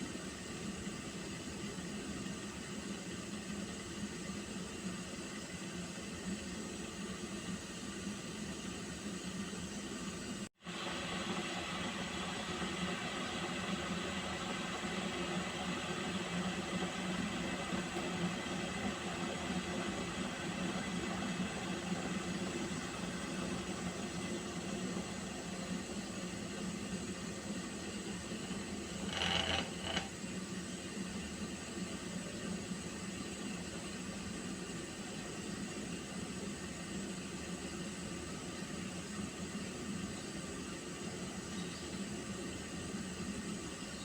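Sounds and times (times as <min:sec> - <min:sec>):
water boiling: 0:00.0 - 0:44.0.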